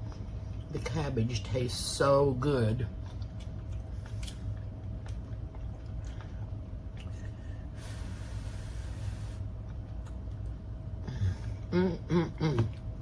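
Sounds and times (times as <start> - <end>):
steady low hum: 0.0 - 13.0
person chewing food: 2.8 - 11.7
breathy hiss: 7.7 - 9.5.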